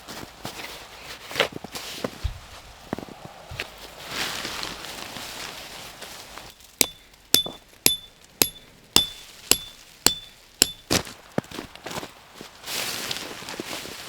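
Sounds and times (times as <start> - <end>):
hammer striking metal: 6.8 - 11.0.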